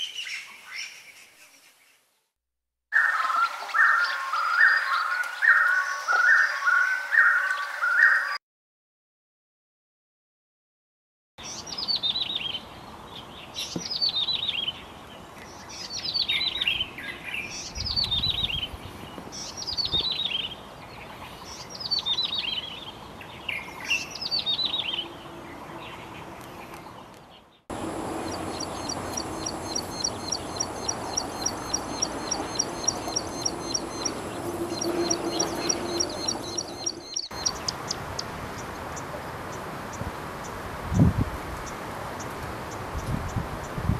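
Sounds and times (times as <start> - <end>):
prinia chirping phrase: 27.4 - 38.7
prinia thin ticking notes: 27.7 - 39.6.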